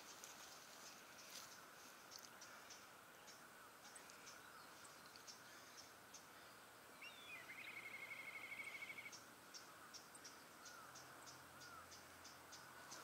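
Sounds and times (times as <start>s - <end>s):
small bird calling: 0.0s - 13.0s
faint high ticks: 5.0s - 6.3s
rapid bird trill: 7.1s - 13.0s.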